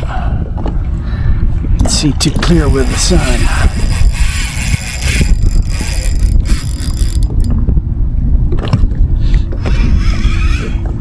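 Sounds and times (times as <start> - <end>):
fishing reel clicking and whirring: 1.9 - 7.6.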